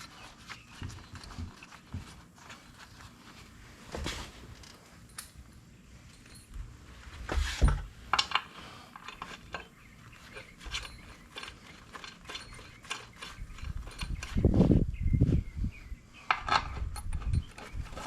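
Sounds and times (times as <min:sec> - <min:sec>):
metallic clicks and clinks: 0:10.3 - 0:14.4.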